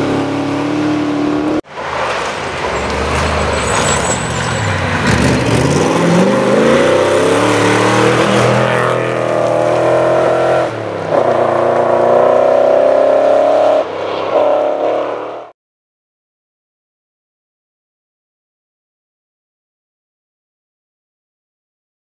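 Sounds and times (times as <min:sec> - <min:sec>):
rally car engine accelerating: 0:00.0 - 0:13.8.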